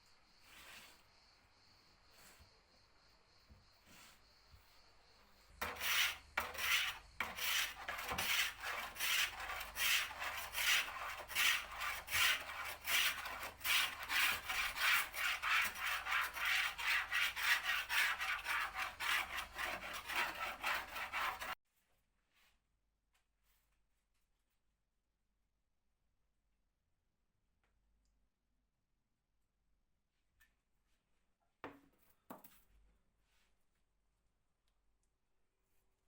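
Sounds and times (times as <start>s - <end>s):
sanding wood by hand: 5.6s - 21.6s.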